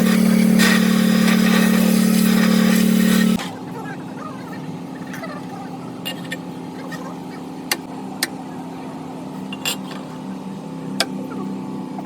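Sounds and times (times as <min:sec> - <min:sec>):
machine hum: 0:00.0 - 0:03.4.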